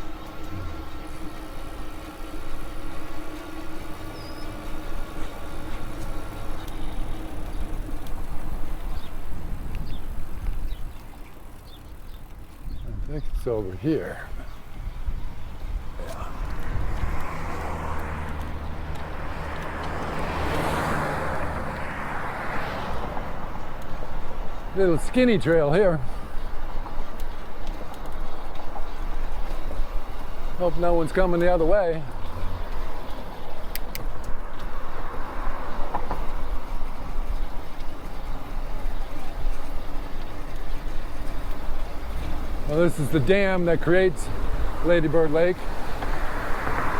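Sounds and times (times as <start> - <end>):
electric bike motor hum: 0.0 - 46.9
wind buffeting microphone: 0.0 - 46.9
tyre and air rushing: 15.8 - 18.4.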